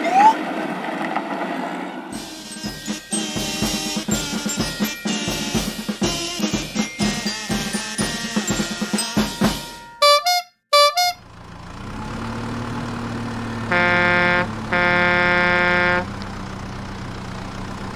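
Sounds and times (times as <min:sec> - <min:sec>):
drum-beat music: 0:02.2 - 0:10.2
horn honking: 0:09.6 - 0:11.3, 0:13.4 - 0:17.2
vehicle engine idling: 0:11.2 - 0:17.9.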